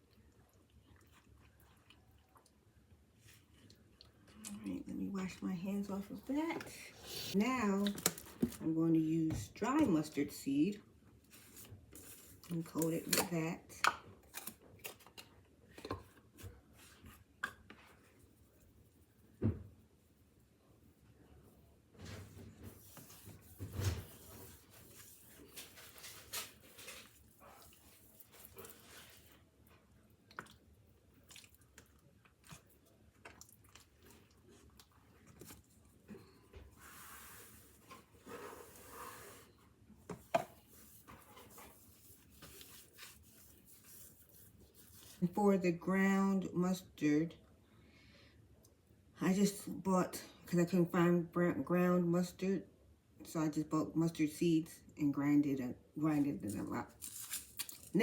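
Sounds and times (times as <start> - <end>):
soft rustling: 34.1 - 45.2.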